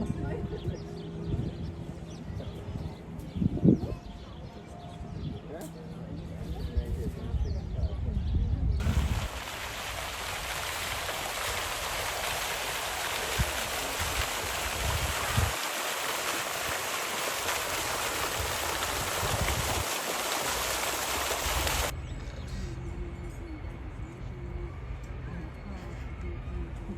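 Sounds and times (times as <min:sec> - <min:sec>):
rushing splashing water: 0:08.8 - 0:21.9.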